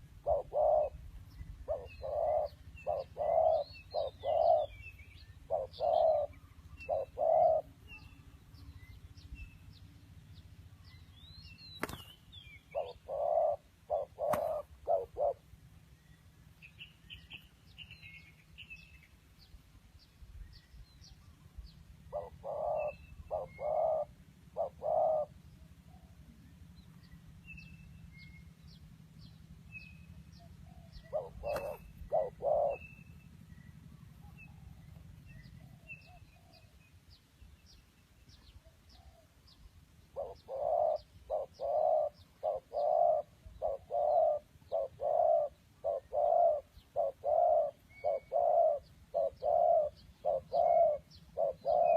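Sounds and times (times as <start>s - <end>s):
low hooting bird call: 0.0s - 9.0s, 12.4s - 15.6s, 22.0s - 36.9s, 38.6s - 51.9s
small birds chirping: 0.0s - 51.9s.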